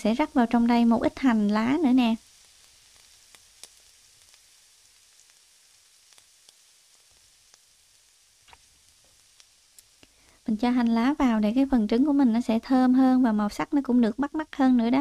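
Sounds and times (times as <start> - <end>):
omelette sizzling in oil: 0.0 - 15.0
small oil pops: 2.2 - 11.0.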